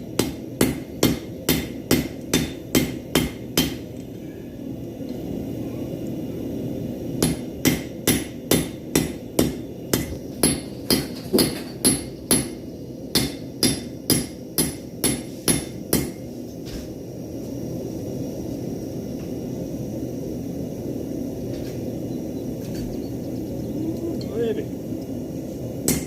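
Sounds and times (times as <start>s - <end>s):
forge roaring: 2.4s - 9.8s.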